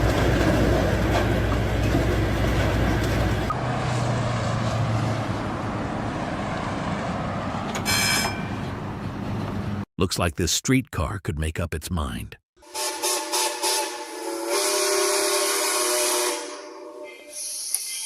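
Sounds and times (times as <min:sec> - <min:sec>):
road vehicle and traffic noise: 0:00.0 - 0:09.9.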